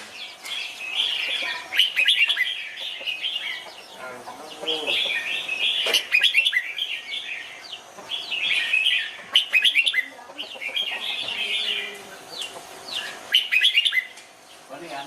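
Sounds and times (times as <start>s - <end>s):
bird singing warbling whistles: 8.6s - 10.1s, 13.3s - 14.1s.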